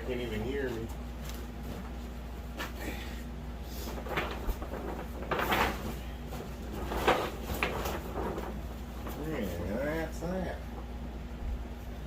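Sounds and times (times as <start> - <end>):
fabric rustling and frame scraping: 3.7 - 10.1.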